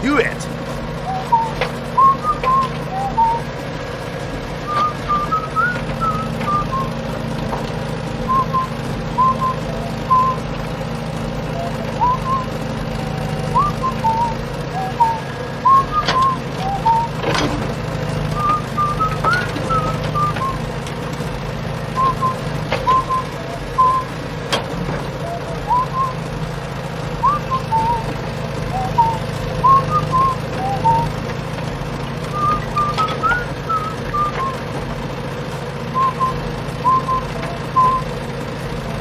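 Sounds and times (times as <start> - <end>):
whistled tune: 0.2 - 3.5, 4.6 - 7.0, 8.2 - 10.6, 11.5 - 17.6, 18.4 - 20.7, 22.0 - 24.2, 25.2 - 26.2, 27.2 - 28.1, 28.7 - 31.2, 32.3 - 34.7, 35.9 - 38.1.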